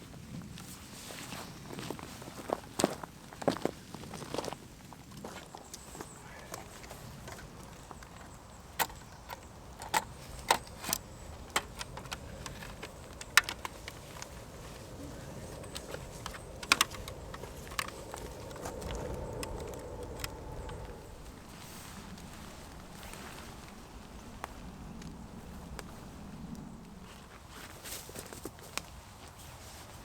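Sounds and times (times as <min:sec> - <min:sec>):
small hard objects clicking: 0:15.6 - 0:20.9.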